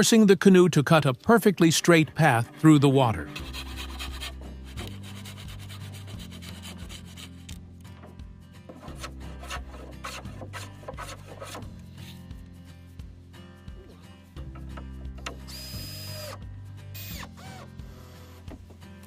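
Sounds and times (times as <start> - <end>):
hand tool scraping wood: 3.2 - 7.6, 8.7 - 12.2.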